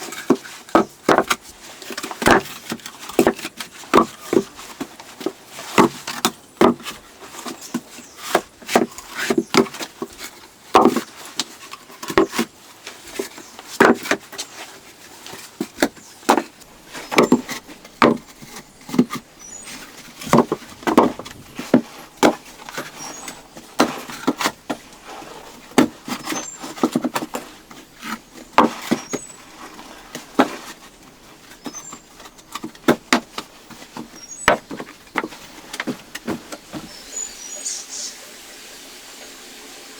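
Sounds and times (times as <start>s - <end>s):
wood and stone knocking: 15.8s - 37.0s.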